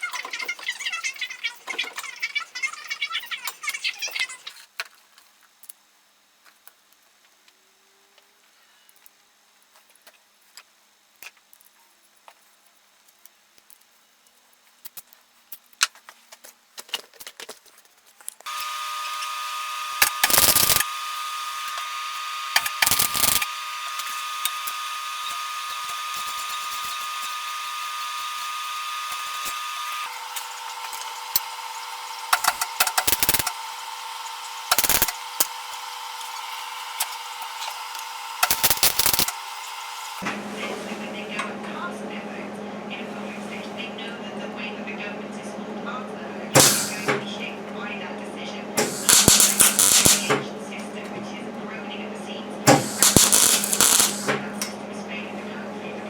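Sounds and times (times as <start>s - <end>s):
tool cutting noise: 18.4s - 40.3s, 46.6s - 47.2s, 48.8s - 50.4s, 52.7s - 54.8s
power tool motor whining: 18.5s - 40.2s, 48.8s - 50.4s, 52.7s - 54.4s.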